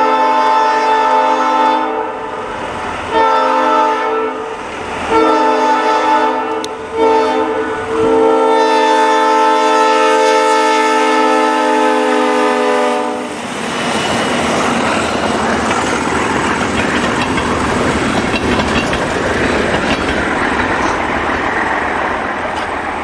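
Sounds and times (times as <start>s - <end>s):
diesel locomotive horn: 0.0s - 13.4s
freight train rolling past: 0.0s - 23.0s
wheels clicking over rails: 13.6s - 23.0s.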